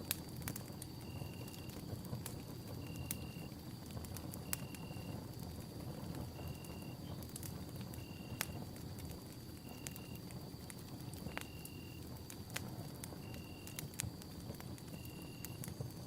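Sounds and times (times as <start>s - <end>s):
campfire crackling and popping: 0.0s - 16.0s
high insect trill: 13.1s - 16.0s.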